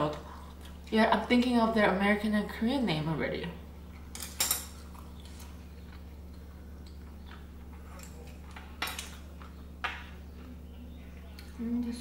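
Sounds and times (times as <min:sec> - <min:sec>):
steady low hum: 0:00.0 - 0:12.0
chewing and mouth sounds: 0:04.7 - 0:09.6.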